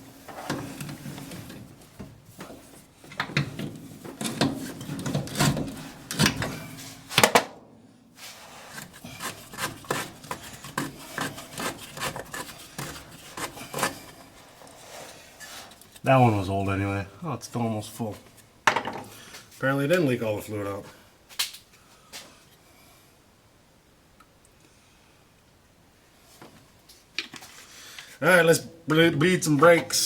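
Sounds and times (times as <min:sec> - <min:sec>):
metal rubbing and scraping: 0:03.4 - 0:07.1, 0:08.2 - 0:16.0.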